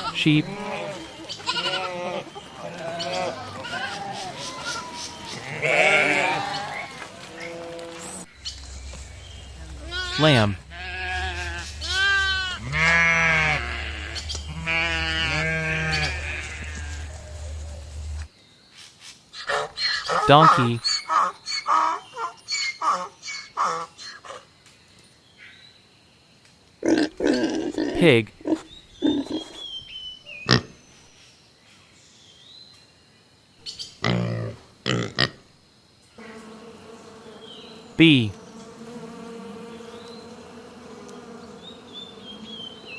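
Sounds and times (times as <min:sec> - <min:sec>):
lamb bleating: 0:00.0 - 0:02.2, 0:04.5 - 0:06.7, 0:09.8 - 0:17.1
bee buzzing: 0:05.6 - 0:18.3, 0:36.2 - 0:42.9
pig grunting: 0:09.2 - 0:17.8, 0:19.5 - 0:21.9, 0:26.8 - 0:29.7, 0:34.0 - 0:35.4.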